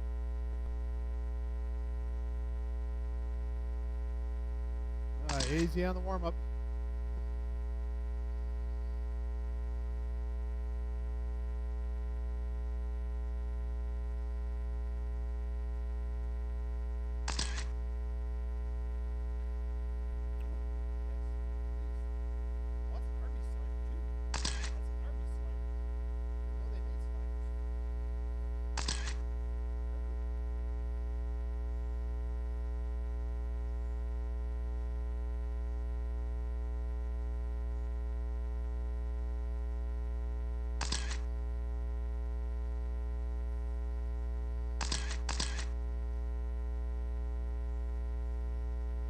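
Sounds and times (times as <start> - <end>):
electrical mains hum: 0.0 - 49.0
sharp clicks: 5.3 - 6.0, 17.3 - 17.8, 24.3 - 24.8, 28.8 - 29.3, 40.8 - 41.3, 44.8 - 45.8.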